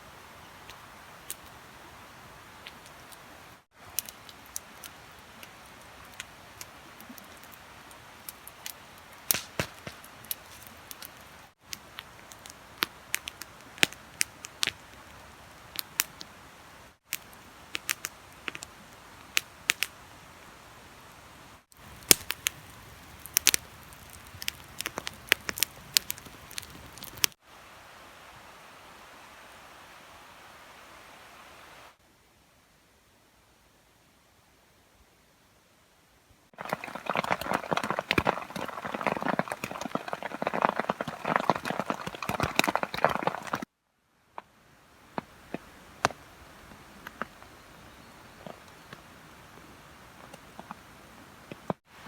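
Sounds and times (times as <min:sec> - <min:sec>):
steady hiss: 0:00.0 - 0:37.0
wood fire crackling: 0:00.4 - 0:27.4, 0:36.6 - 0:43.7, 0:45.0 - 0:52.0
sharp pops of fire: 0:09.2 - 0:11.8, 0:21.8 - 0:27.4.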